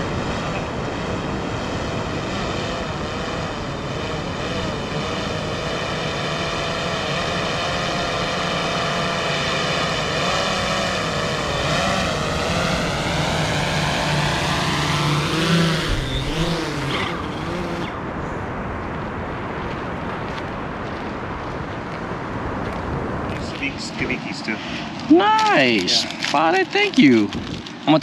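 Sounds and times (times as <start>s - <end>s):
drone motors whining: 0.0s - 18.1s.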